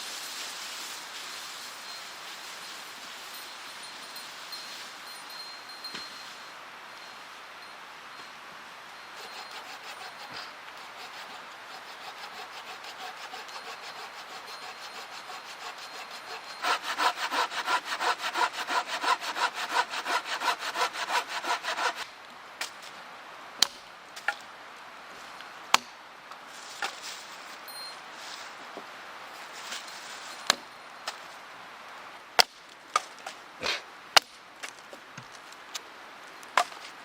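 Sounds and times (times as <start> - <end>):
hand saw cutting wood: 9.2 - 22.1.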